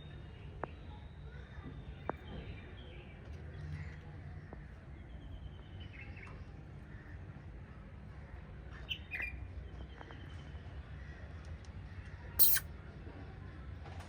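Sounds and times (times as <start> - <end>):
small birds chirping softly: 0.0 - 12.6
sharp click: 12.4 - 12.6.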